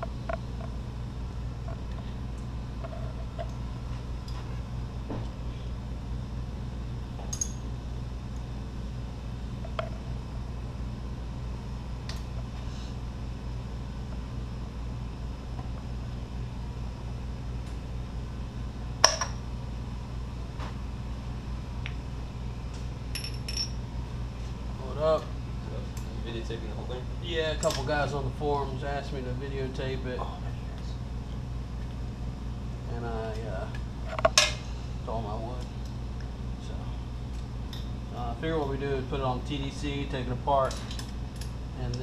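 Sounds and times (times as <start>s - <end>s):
steady low hum: 0.0s - 42.0s
light metallic clinks: 7.3s - 7.7s, 23.2s - 23.8s.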